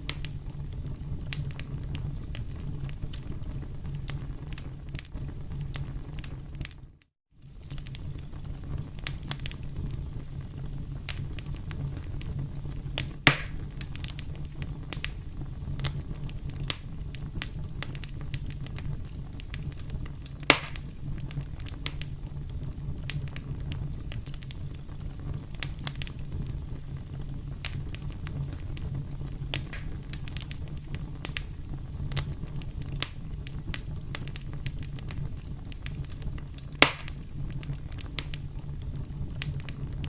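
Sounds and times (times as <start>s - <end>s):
campfire crackling: 0.0s - 40.0s
sharp fire pops: 0.0s - 40.0s.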